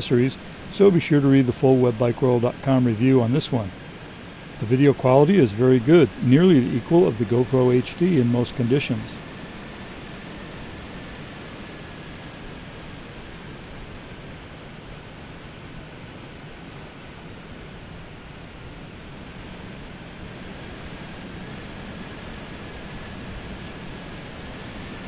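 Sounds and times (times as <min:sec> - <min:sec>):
faint steady whine: 0:00.0 - 0:25.0
rushing wind: 0:00.0 - 0:25.0
road noise: 0:04.6 - 0:09.5.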